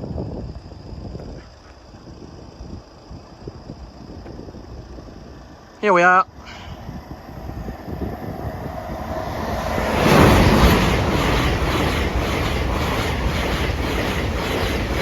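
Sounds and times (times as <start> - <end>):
high-speed train passing: 2.4 - 15.0
repeating beat of train wheels: 7.0 - 15.0.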